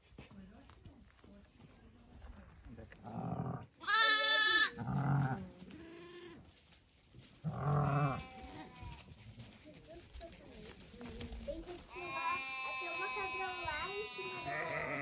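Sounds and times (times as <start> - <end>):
lamb bleating: 3.8 - 6.4, 7.5 - 9.0, 11.8 - 15.0.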